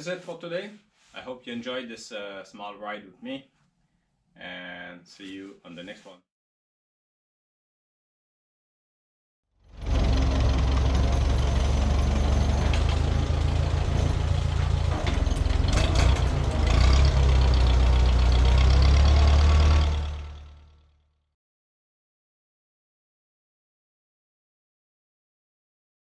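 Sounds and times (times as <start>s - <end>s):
garden tractor engine running: 9.7s - 20.4s.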